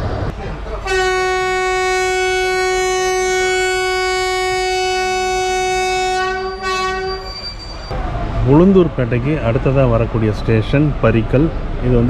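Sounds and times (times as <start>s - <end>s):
moving train rumble: 0.0s - 12.0s
locomotive horn blast: 0.8s - 7.4s.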